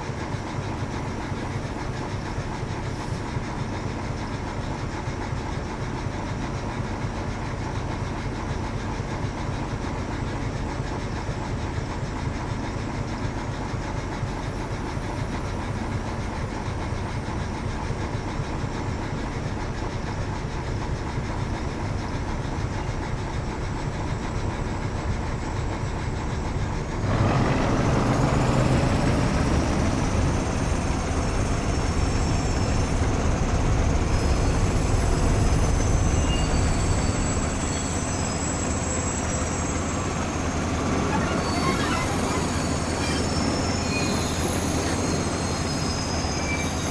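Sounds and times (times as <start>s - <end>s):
train rumbling on rails: 0.0s - 46.9s
high wheel squeal: 20.8s - 46.9s.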